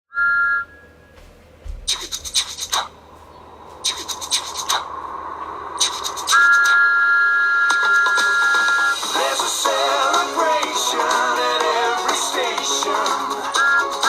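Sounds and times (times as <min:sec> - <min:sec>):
scratchy rubbing strokes: 0:01.9 - 0:02.9
electronic beep: 0:05.8 - 0:09.0, 0:13.6 - 0:14.0
music: 0:07.7 - 0:14.0.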